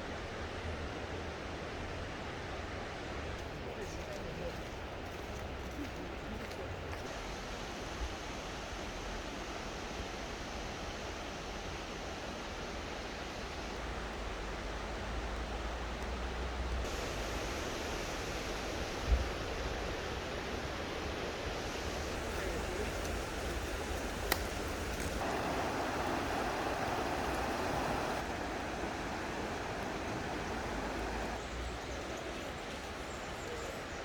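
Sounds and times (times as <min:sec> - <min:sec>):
mountain stream rushing: 0:03.4 - 0:34.0
wind rumble on microphone: 0:16.8 - 0:31.4.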